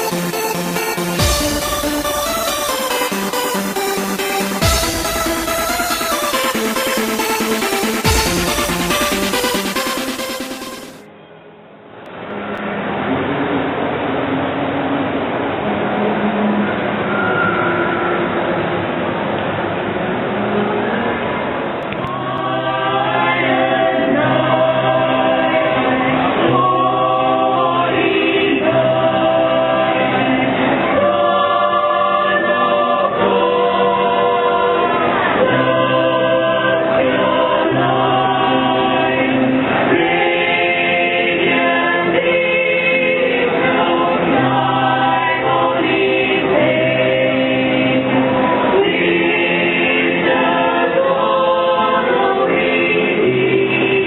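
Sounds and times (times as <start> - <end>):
choir singing a carol: 0.0 - 11.0, 21.9 - 54.0
instrumental backing: 0.0 - 11.0.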